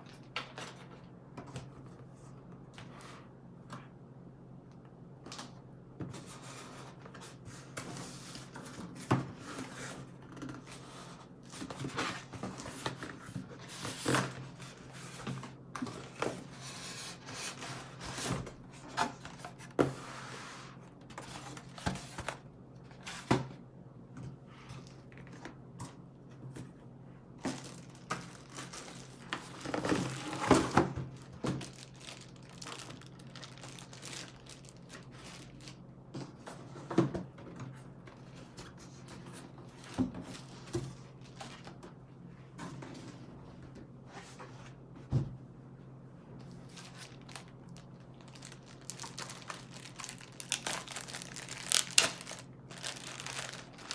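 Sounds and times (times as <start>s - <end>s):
packaging crinkling and tearing: 27.4s - 35.8s, 46.6s - 53.9s.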